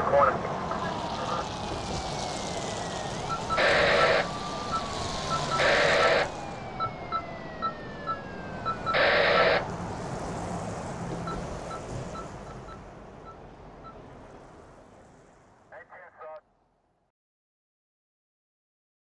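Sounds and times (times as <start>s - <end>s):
falling tones: 2.0s - 9.7s.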